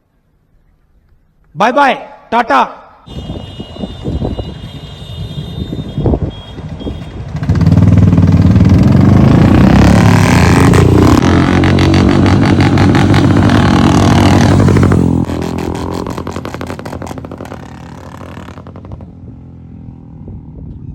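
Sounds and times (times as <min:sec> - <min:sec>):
motorcycle engine accelerating: 0:06.6 - 0:20.9.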